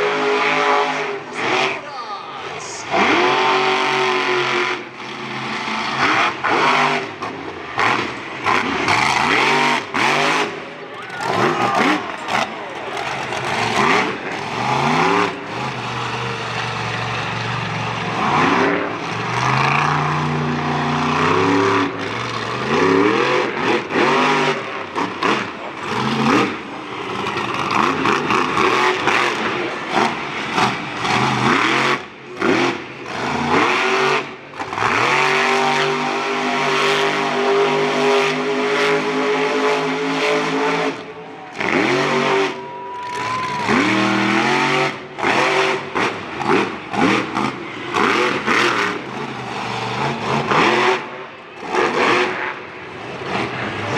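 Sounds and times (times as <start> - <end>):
monster truck engine revving: 0.0 - 53.9.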